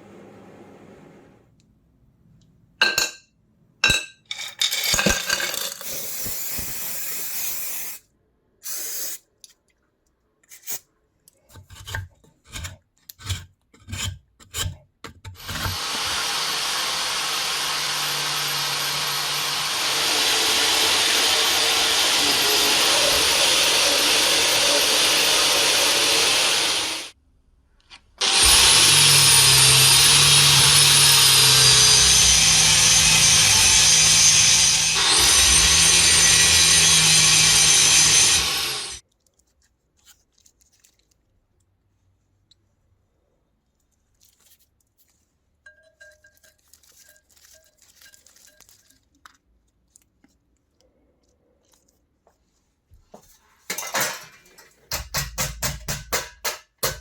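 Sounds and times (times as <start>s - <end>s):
power tool whining on metal: 15.4s - 27.2s, 28.2s - 39.0s.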